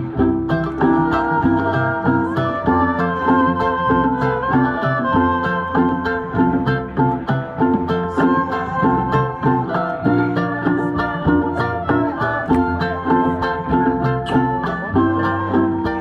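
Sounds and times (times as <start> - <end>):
plucked strings: 0.0 - 16.0
violin: 0.0 - 16.0.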